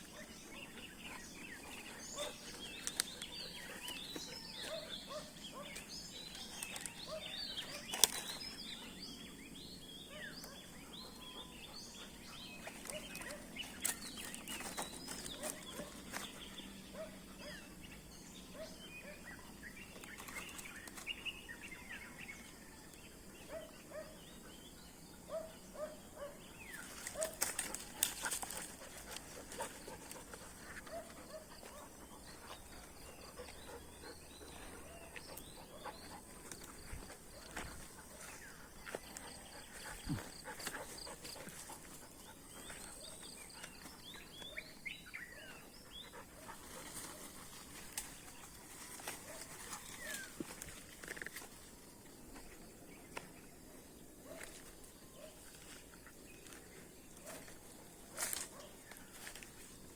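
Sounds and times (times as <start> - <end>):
rustles: 0.0 - 17.0, 19.6 - 24.8, 26.4 - 59.9
small birds chirping: 0.0 - 59.9.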